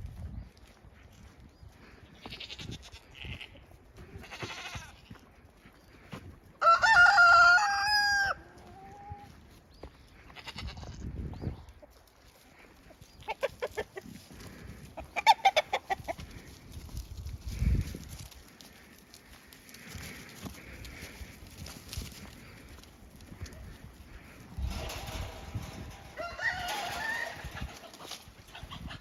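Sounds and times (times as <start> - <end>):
hens clucking: 3.2 - 29.0
rooster crowing: 6.6 - 8.4, 26.1 - 27.5.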